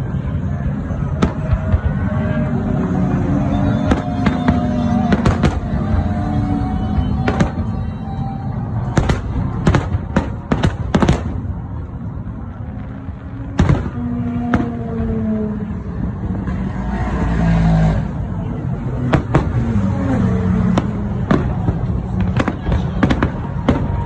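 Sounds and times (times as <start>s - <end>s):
low rumble with drones: 0.0s - 17.4s
fireworks bangs: 0.8s - 17.4s, 19.0s - 24.0s.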